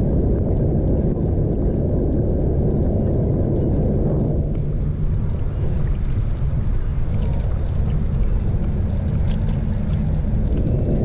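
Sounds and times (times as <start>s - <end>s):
wind and riding noise: 0.0s - 11.0s
faint clicks: 7.1s - 10.8s.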